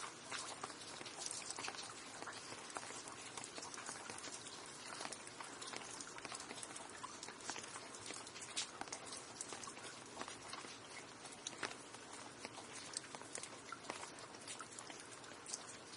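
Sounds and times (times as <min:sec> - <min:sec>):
rain on a hard surface: 0:00.0 - 0:15.9.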